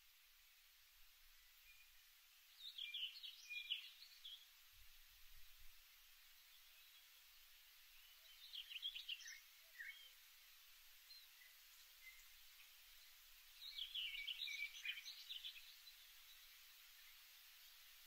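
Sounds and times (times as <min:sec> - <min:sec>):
faint hiss: 0:00.0 - 0:18.0
birdsong chirping: 0:01.4 - 0:04.5, 0:06.5 - 0:10.3, 0:11.0 - 0:17.8.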